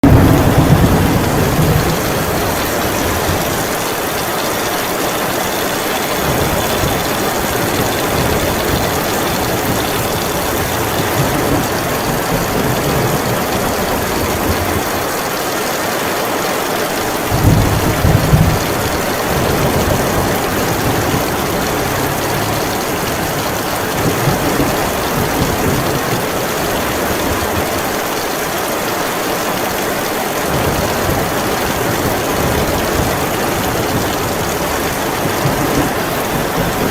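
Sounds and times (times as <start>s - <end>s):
thunder rumble: 0.0s - 15.1s, 17.2s - 27.9s
heavy rain pouring: 0.0s - 36.9s.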